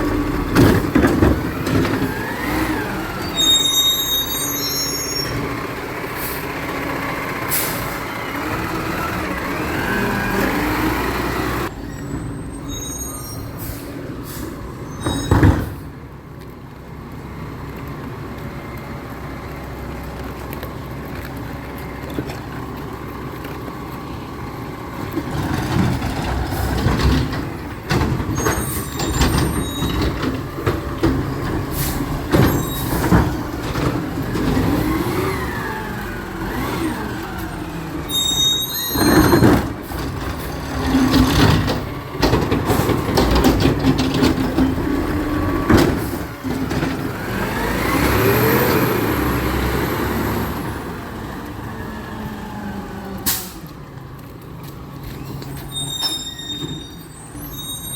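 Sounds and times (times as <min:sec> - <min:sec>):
truck diesel engine running: 0:00.0 - 0:12.4
knocks and clattering: 0:00.1 - 0:02.3, 0:25.1 - 0:34.8, 0:39.0 - 0:47.3
air brake release: 0:06.2 - 0:06.5, 0:07.5 - 0:08.0, 0:12.6 - 0:15.9, 0:31.7 - 0:33.0, 0:53.2 - 0:53.7.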